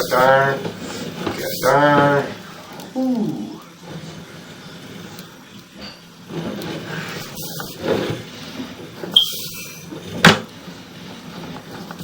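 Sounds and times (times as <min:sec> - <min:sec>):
cable scraping in drain: 0:06.2 - 0:12.0
short squeak: 0:09.1 - 0:09.8.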